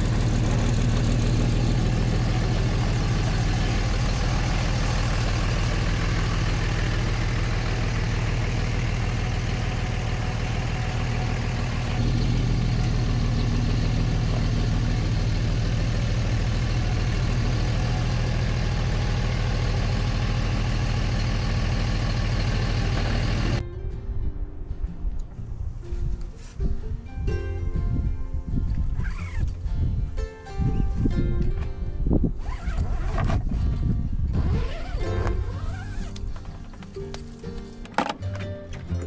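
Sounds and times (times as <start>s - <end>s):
truck engine running: 0.0s - 23.6s, 32.4s - 39.0s.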